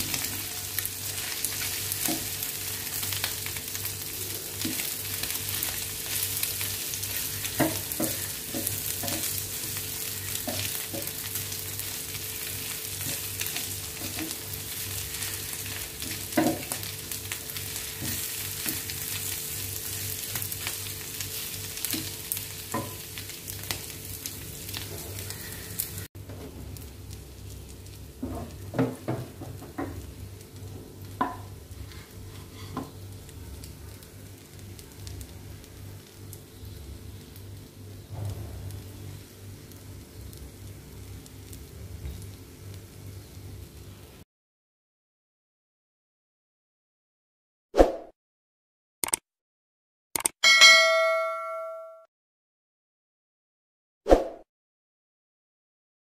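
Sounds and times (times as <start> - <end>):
meat sizzling on a metal plate: 0.0 - 26.1.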